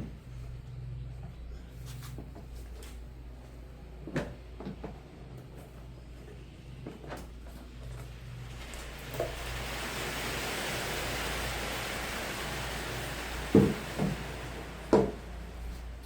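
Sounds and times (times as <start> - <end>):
steady hiss: 8.0 - 16.0.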